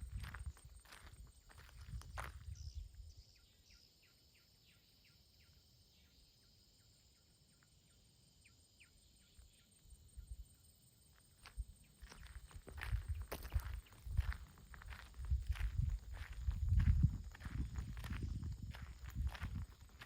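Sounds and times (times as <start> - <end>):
footsteps: 11.4 - 20.0.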